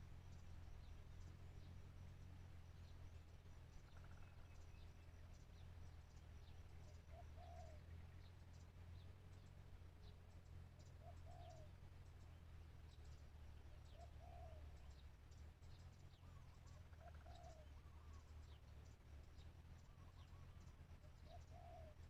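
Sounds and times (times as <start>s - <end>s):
low steady hum: 0.0s - 22.0s
small birds chirping: 0.0s - 22.0s
dove cooing: 7.1s - 7.8s, 11.0s - 11.7s, 13.9s - 14.7s, 16.3s - 18.2s, 21.2s - 22.0s.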